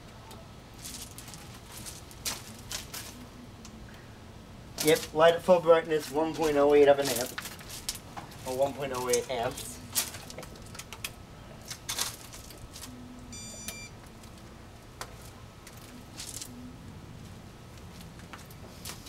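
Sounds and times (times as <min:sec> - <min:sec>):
faint steady hum: 0:00.0 - 0:19.0
short electronic beep: 0:13.3 - 0:13.9.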